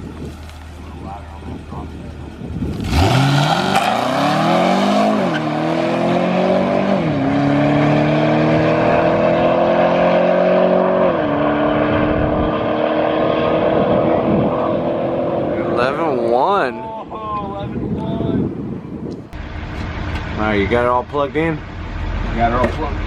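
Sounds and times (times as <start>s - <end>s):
race engine accelerating hard: 2.7s - 16.0s.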